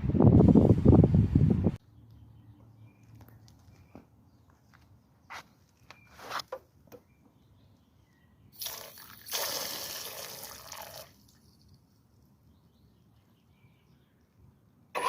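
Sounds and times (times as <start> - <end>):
rushing spraying water: 8.6 - 11.2.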